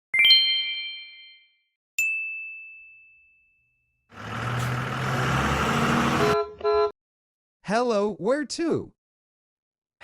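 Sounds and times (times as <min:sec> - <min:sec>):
car engine running: 0:04.1 - 0:06.4
road noise: 0:04.1 - 0:06.9
short car horn beeps: 0:06.0 - 0:07.0.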